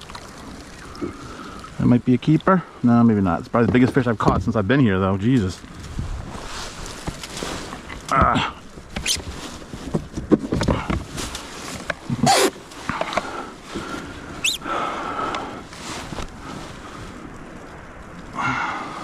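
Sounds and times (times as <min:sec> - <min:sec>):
knocks and clicks of gear handled: 0:03.6 - 0:04.5
rising squeak: 0:14.4 - 0:14.6.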